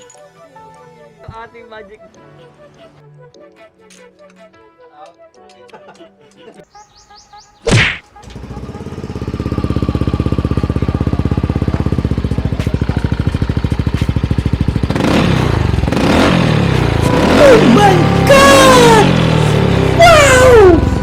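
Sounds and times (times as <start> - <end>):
scooter engine idling: 8.3 - 20.0.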